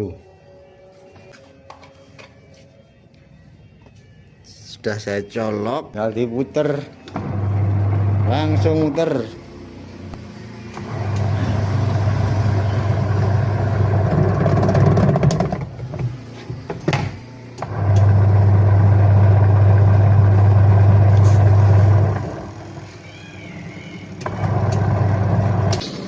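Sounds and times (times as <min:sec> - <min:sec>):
washing machine motor humming: 0:07.1 - 0:09.1, 0:10.6 - 0:25.8
clicks: 0:24.1 - 0:25.0.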